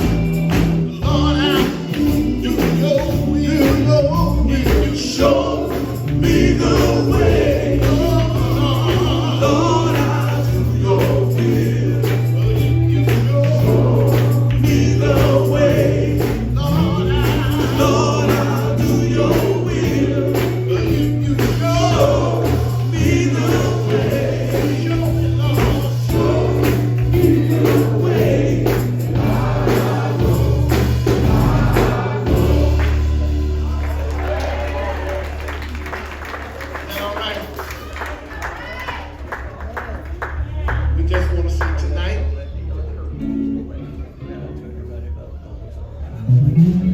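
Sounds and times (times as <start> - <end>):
male group singing in harmony: 0.0 - 35.6
live band playing: 0.0 - 46.9.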